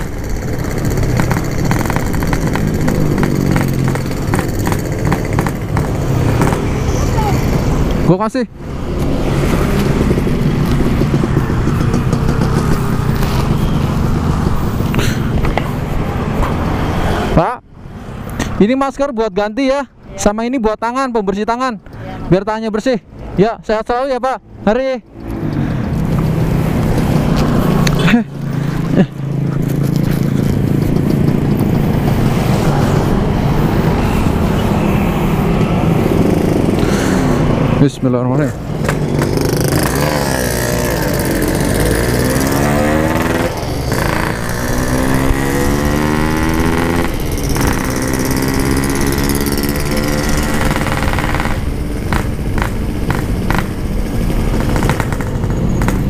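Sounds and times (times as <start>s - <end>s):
two-stroke motorcycle engine: 0.0s - 15.6s, 25.6s - 34.6s, 35.9s - 37.3s, 38.4s - 56.0s
wind and road noise: 0.0s - 56.0s.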